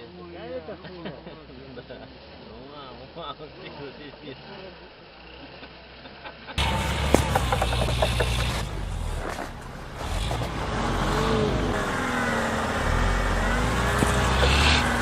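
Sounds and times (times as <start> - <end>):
off-road vehicle engine revving: 6.6 - 15.0.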